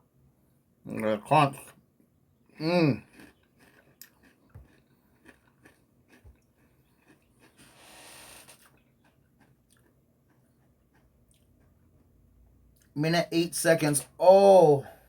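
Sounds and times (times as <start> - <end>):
chewing crunchy snacks: 2.6 - 12.2.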